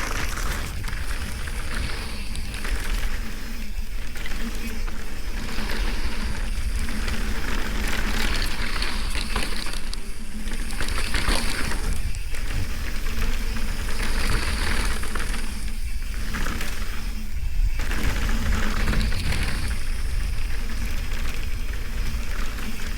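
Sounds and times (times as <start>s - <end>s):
tyres crunching over dirt and rocks: 0.0s - 3.3s
bike rattling: 0.0s - 22.9s
wind rushing over microphone: 0.0s - 22.9s.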